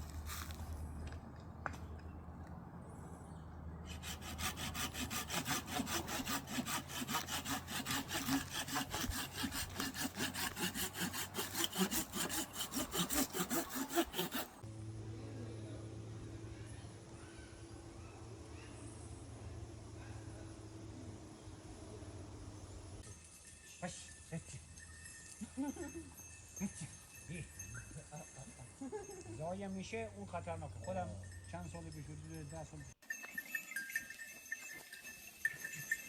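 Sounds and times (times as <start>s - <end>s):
hand saw cutting wood: 3.9s - 14.6s.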